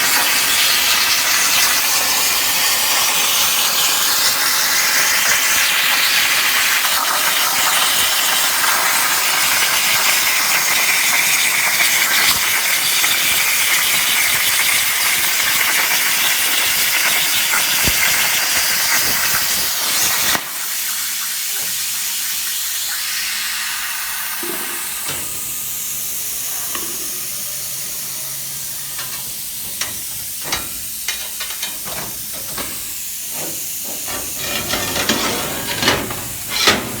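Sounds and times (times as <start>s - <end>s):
plasma torch cutting steel: 0.0s - 20.8s, 24.4s - 37.0s
sharp clicks and knocks: 29.0s - 37.0s.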